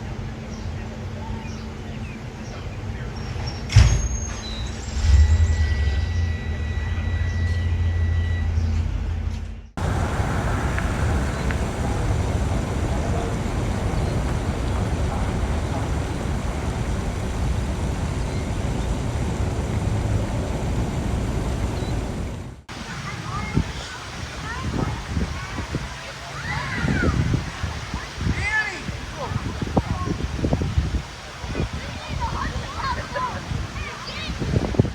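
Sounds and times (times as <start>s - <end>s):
heavy vehicle engine rumbling: 2.8s - 28.2s
passing traffic: 3.7s - 28.2s.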